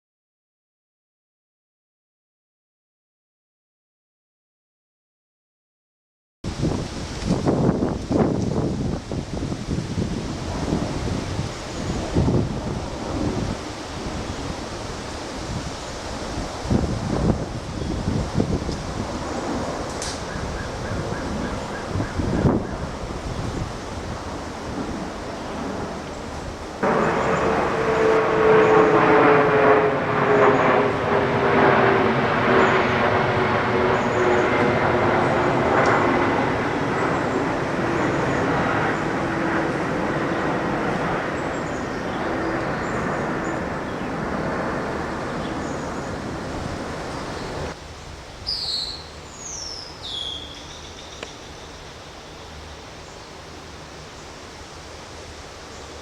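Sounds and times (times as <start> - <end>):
bird giving high falling calls: 20.2 - 22.9, 48.4 - 53.4
loud engine falling in pitch: 26.8 - 34.4.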